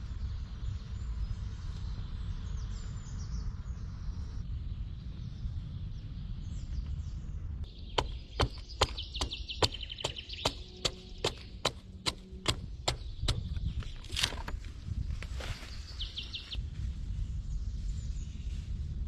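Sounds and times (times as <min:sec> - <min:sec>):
hand tool striking wood: 0:08.0 - 0:14.5.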